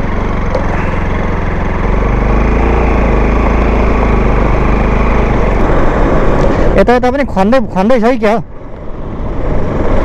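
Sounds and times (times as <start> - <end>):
motorcycle engine running: 0.0 - 7.4
tyres on gravel and wind: 0.0 - 10.0.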